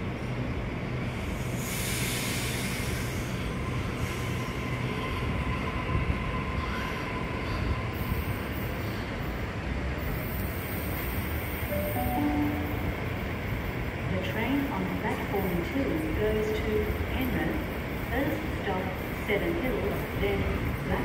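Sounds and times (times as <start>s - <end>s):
train wheels rumbling on rail: 0.0s - 11.7s, 13.1s - 21.0s.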